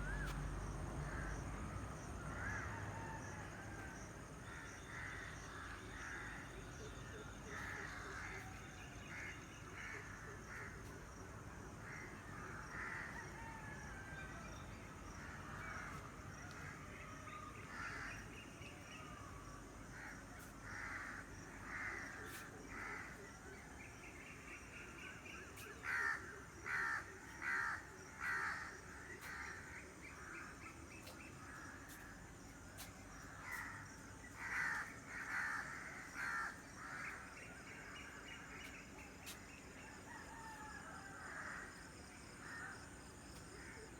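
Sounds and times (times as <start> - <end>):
faint background birds: 0.0 - 43.9
crows cawing: 11.8 - 13.6, 20.0 - 23.2, 25.8 - 29.6, 34.4 - 37.2, 40.3 - 41.8.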